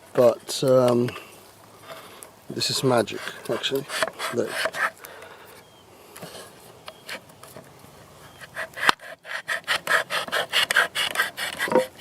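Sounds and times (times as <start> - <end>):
knife sawing through metal can: 3.2 - 5.0, 8.4 - 12.0.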